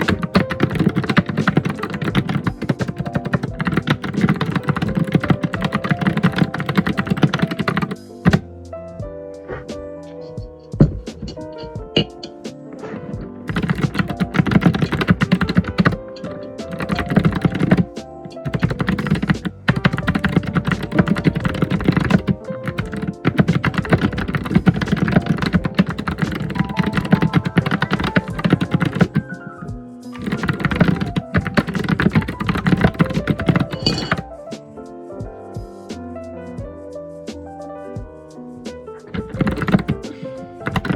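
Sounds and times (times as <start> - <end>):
computer keyboard typing: 0.0 - 8.5, 13.5 - 29.5, 30.1 - 34.2, 39.1 - 40.9
background music: 0.0 - 40.9.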